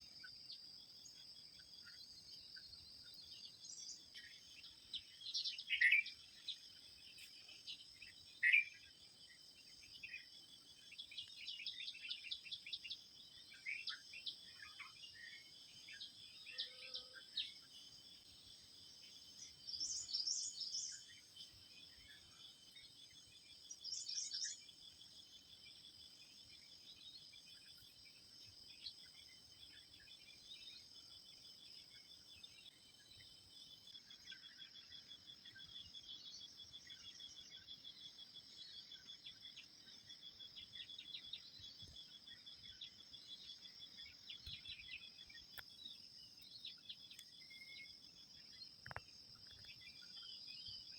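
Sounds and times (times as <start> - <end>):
insect chorus: 0.0 - 50.9.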